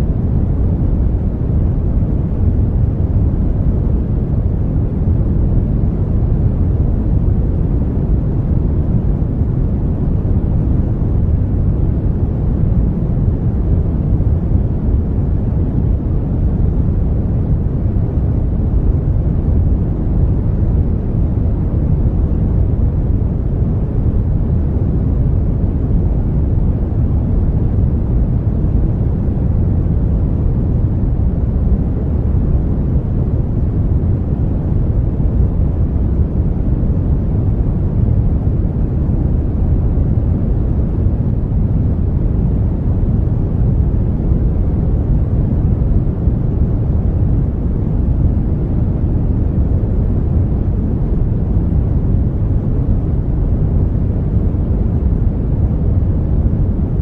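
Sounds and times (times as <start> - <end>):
brown noise: 0.0 - 57.0.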